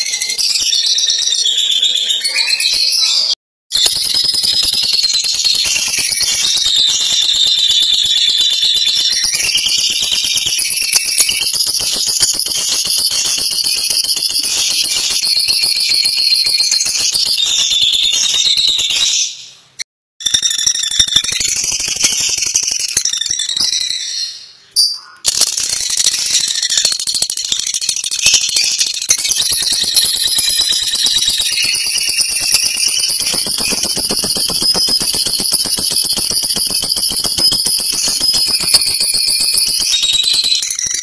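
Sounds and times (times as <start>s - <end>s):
lovebird high-pitched trill: 0.0s - 19.4s, 20.2s - 41.0s.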